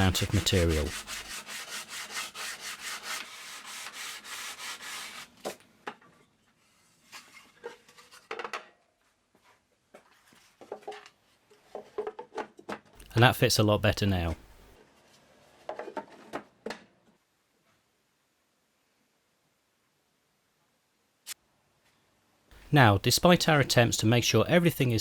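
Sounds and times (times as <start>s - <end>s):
sandpaper rubbing on wood: 0.0s - 5.3s.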